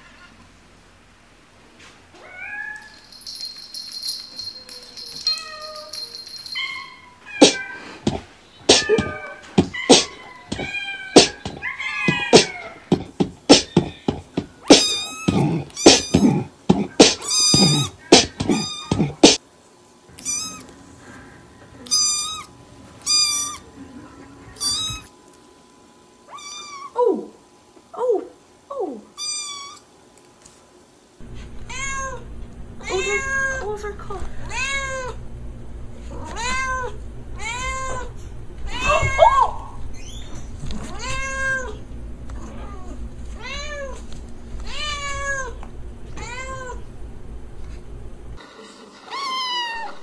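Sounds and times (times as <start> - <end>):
cat meowing: 8.7 - 12.9, 14.6 - 16.5, 17.2 - 19.2, 20.2 - 20.7, 21.8 - 23.7, 24.6 - 25.1, 26.3 - 27.0, 29.2 - 29.8, 31.7 - 32.2, 32.8 - 33.7, 34.4 - 35.2, 36.1 - 39.8, 40.8 - 41.8, 42.4 - 44.0, 44.6 - 45.6, 46.2 - 46.8.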